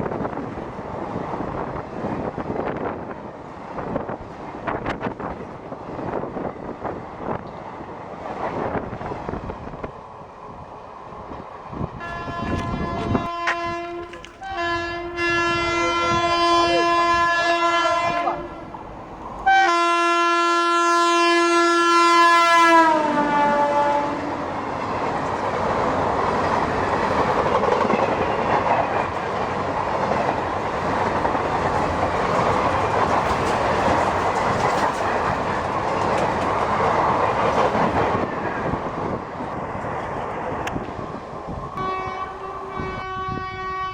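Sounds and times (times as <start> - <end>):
train coaches roaring past: 0.0 - 43.9
train wheel clatter: 11.3 - 15.9, 24.6 - 43.2
locomotive horn blasts: 12.0 - 18.8, 19.4 - 24.4, 41.8 - 43.9.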